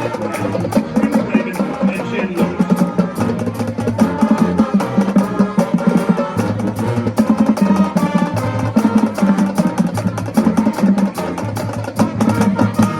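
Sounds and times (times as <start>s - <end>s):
drums beating: 0.0s - 12.9s
marching band playing: 0.0s - 12.9s.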